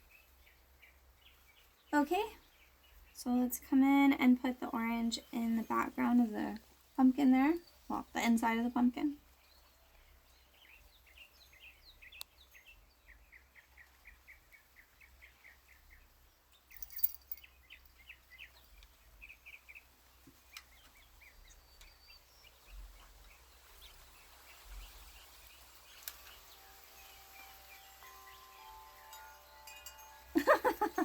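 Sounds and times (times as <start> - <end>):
bird chirping: 7.3 - 31.0
faint wind chime tones: 16.7 - 17.6, 26.2 - 31.0.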